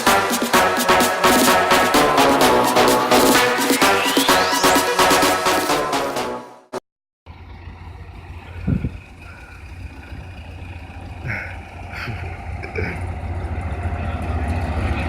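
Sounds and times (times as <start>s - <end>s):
combine harvester diesel engine droning: 7.3s - 15.0s.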